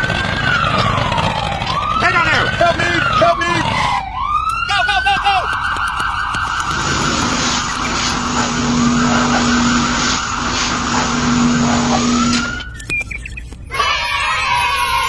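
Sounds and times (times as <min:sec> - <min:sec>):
engine running: 0:00.0 - 0:03.9, 0:05.5 - 0:13.7
skidding hiss: 0:06.7 - 0:12.6.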